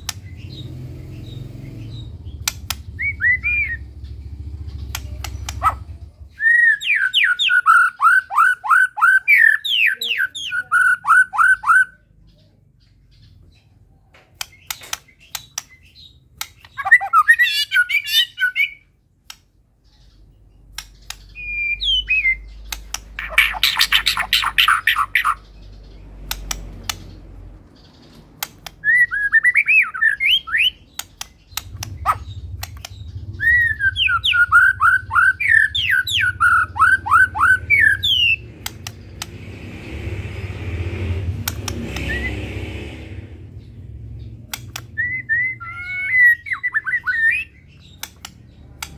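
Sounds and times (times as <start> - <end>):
bird singing: 0.0 - 48.9.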